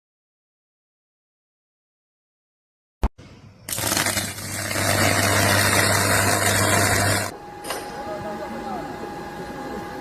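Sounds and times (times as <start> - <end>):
machine running loudly: 3.7 - 10.0.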